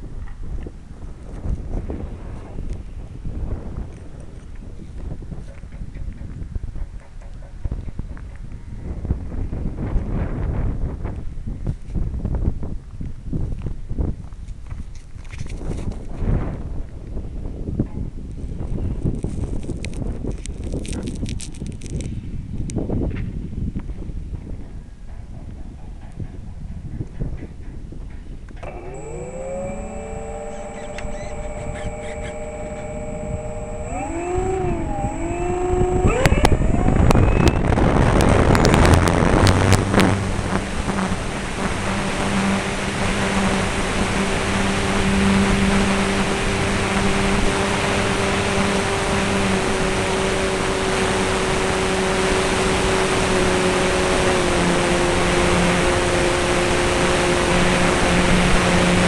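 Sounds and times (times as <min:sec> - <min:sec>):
propeller and wind rush: 0:00.0 - 0:59.0
model airplane motor: 0:18.4 - 0:22.1, 0:28.5 - 0:59.0.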